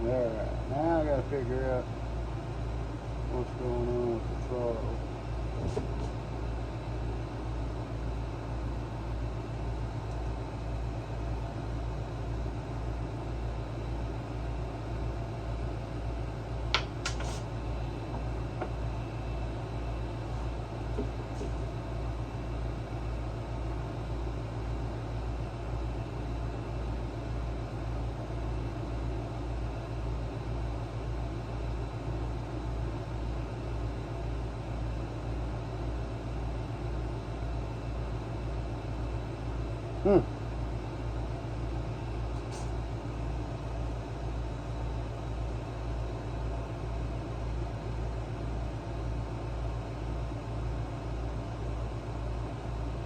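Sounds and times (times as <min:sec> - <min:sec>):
low pulsing machine hum: 0:00.0 - 0:53.0.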